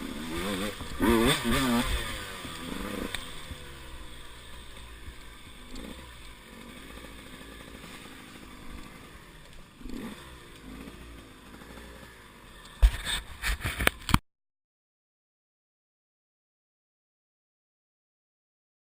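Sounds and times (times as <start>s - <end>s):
motorcycle engine revving: 0.0s - 14.2s.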